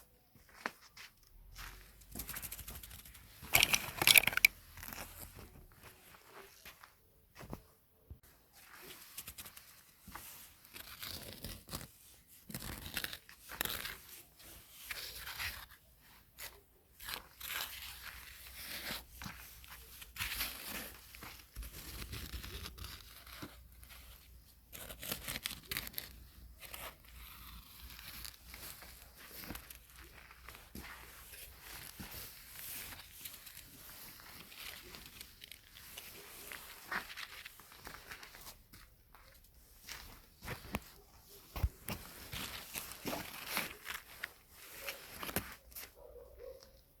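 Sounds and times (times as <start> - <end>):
crunching and tearing: 3.1 - 5.4, 10.4 - 15.7, 16.4 - 45.9.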